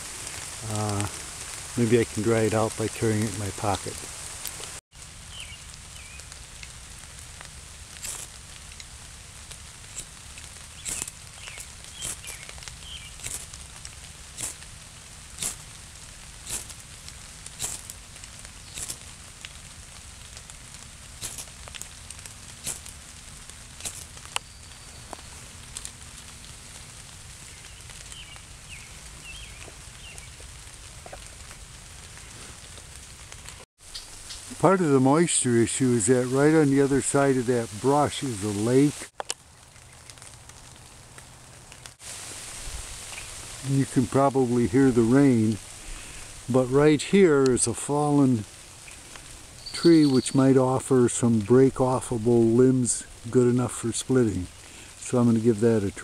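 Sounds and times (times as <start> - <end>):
low rush of rain: 0.0 - 56.0
raindrops striking close by: 0.0 - 56.0.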